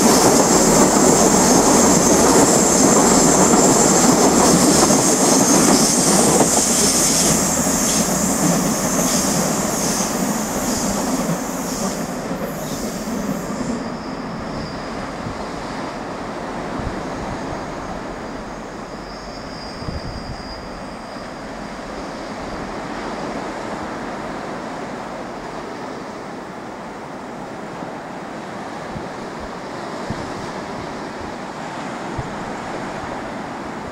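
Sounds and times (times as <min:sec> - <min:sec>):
electric train wheels squealing: 0:00.0 - 0:24.2.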